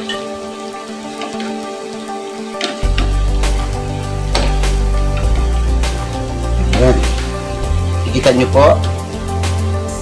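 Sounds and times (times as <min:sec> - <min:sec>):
background music with held tones: 0:00.0 - 0:10.0
food sizzling in a frying pan: 0:00.0 - 0:10.0
deep bass: 0:03.0 - 0:09.9.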